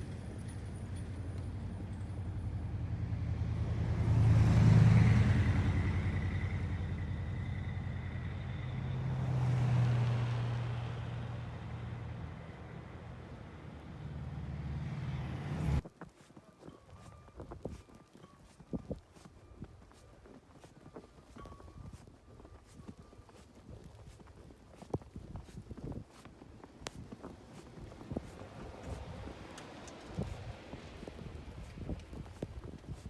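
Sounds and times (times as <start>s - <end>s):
vehicle engine humming: 0.0s - 15.8s, 26.1s - 33.0s.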